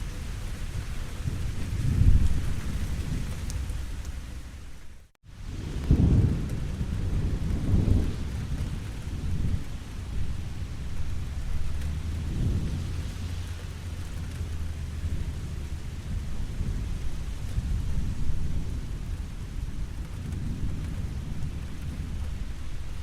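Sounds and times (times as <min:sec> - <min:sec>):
rain falling: 0:00.0 - 0:23.0
deep low rumble: 0:05.4 - 0:23.0.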